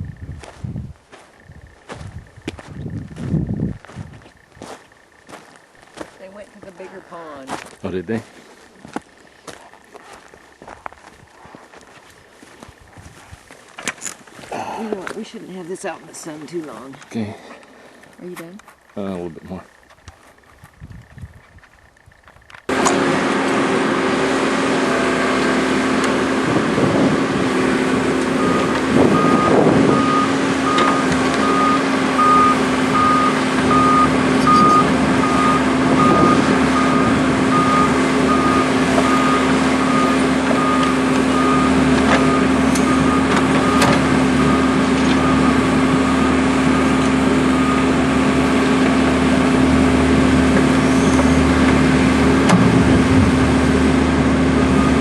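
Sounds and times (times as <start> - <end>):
heavy vehicle engine running: 0.0 - 13.3, 14.4 - 55.0
reversing alarm beeping: 27.5 - 55.0.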